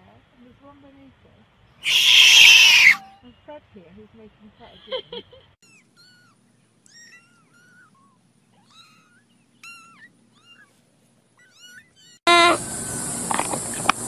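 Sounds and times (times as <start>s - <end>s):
kittens mewing: 1.8s - 3.1s, 5.6s - 12.6s
marmot call: 1.8s - 3.1s.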